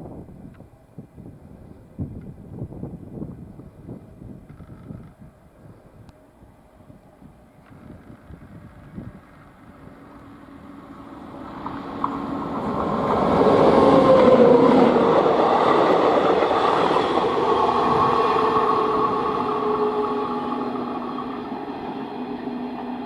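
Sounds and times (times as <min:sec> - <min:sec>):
train rumble: 0:06.1 - 0:23.0
locomotive whining tones: 0:09.6 - 0:23.0.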